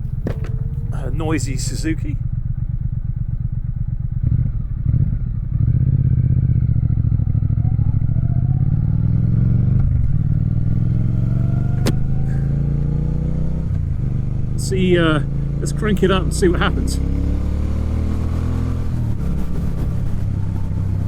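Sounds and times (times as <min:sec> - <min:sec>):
motorcycle engine accelerating: 0:00.0 - 0:21.0
sharp click: 0:11.8 - 0:12.0.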